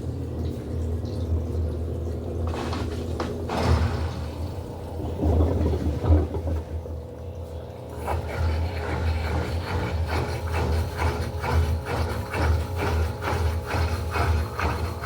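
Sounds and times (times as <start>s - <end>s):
washing machine motor hum: 0.0s - 15.0s
swishes of water and laundry: 2.4s - 6.8s.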